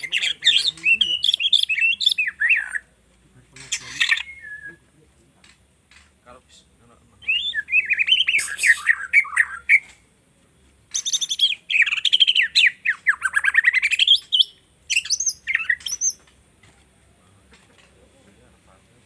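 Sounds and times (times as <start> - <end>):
bird singing with trills: 0.0 - 2.9, 3.6 - 4.8, 7.2 - 9.9, 10.9 - 16.3.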